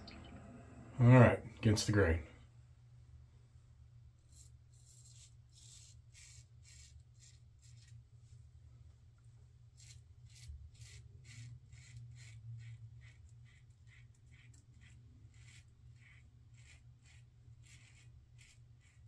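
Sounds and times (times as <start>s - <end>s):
razor scraping stubble: 14.0s - 19.0s.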